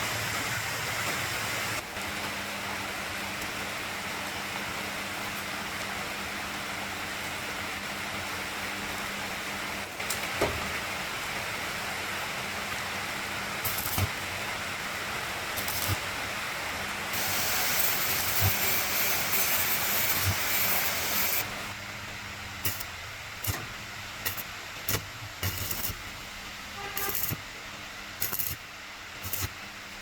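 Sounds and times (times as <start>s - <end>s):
steady hiss: 11.2s - 30.0s.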